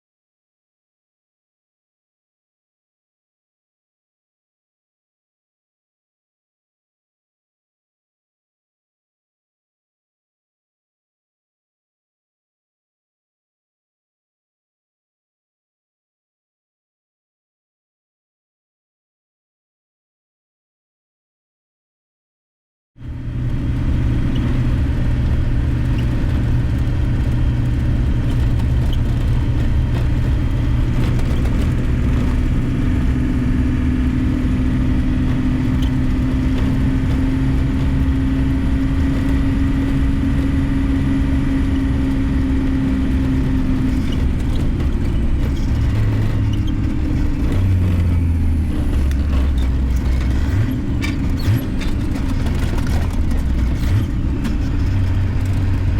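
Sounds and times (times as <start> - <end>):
farm machinery engine humming: 23.0 - 55.9.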